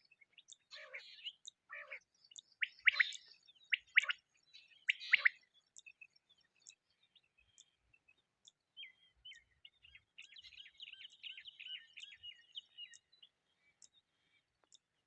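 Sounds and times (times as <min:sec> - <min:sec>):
quail chirping: 0:00.5 - 0:02.0, 0:02.6 - 0:05.4, 0:10.2 - 0:13.1.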